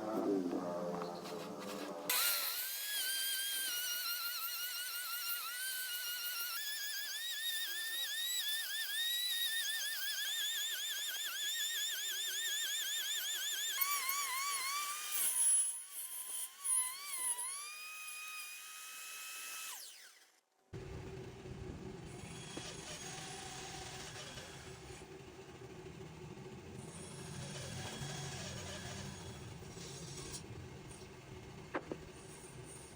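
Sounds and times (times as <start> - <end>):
high-pitched rotary tool whine: 1.7 - 20.3, 22.1 - 25.0, 26.8 - 30.4.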